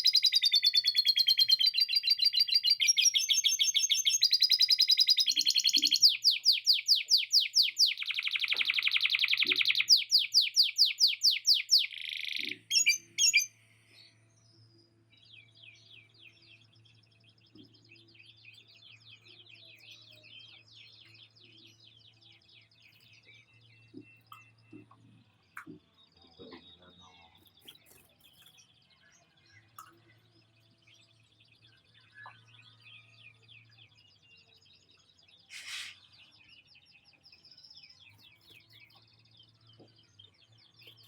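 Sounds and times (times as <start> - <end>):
canary singing: 0.0 - 13.6.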